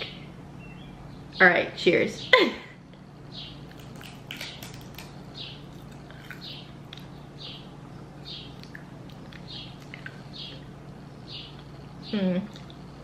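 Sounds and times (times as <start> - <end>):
person chewing crisp snack: 3.6 - 10.8.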